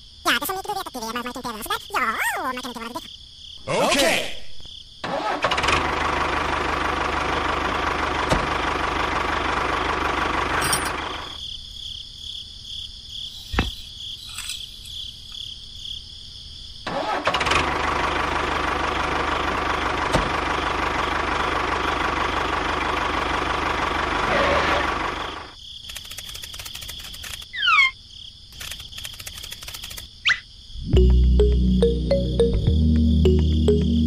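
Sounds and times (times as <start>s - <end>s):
tractor engine running: 5.2s - 11.4s, 17.0s - 27.4s.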